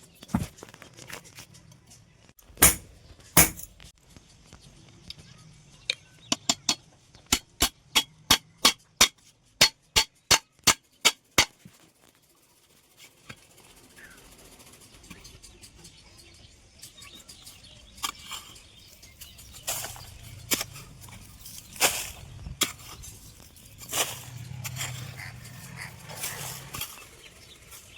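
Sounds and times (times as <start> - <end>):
hammer striking steel: 2.6 - 3.7, 6.4 - 11.5.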